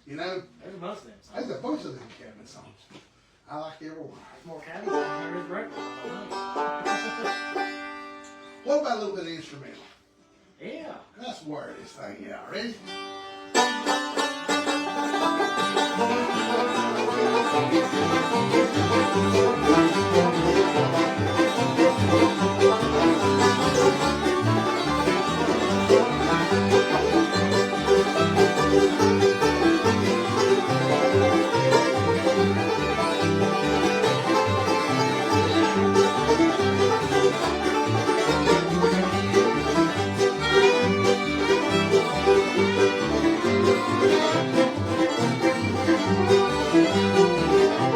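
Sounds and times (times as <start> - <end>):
bluegrass band playing: 4.4 - 9.2, 12.7 - 47.9
banjo picking: 4.4 - 9.9, 12.6 - 47.9
fiddle: 4.4 - 9.9, 12.0 - 47.9
guitar picking: 12.8 - 47.9.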